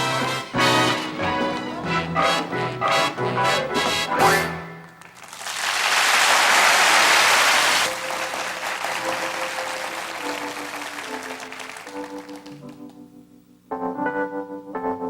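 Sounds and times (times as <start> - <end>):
keyboard playing soft chords: 0.0 - 4.8, 7.9 - 15.0
audience applauding: 5.0 - 13.0.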